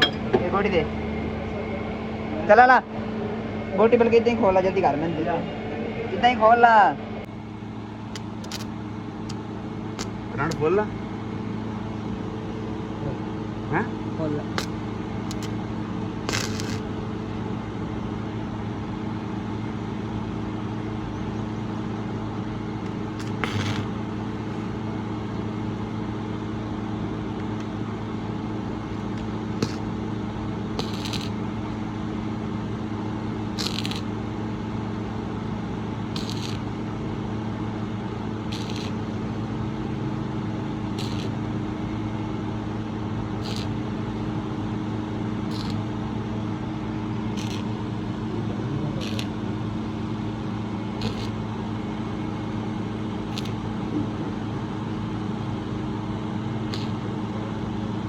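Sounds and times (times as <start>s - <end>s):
mechanical hum: 0.0s - 58.0s
short hiss: 45.5s - 45.8s.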